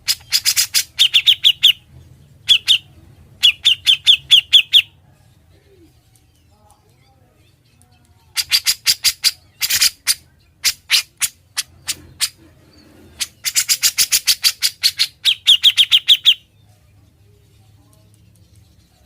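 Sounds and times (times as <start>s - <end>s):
bird chattering calls: 0.0s - 5.0s, 8.3s - 16.5s.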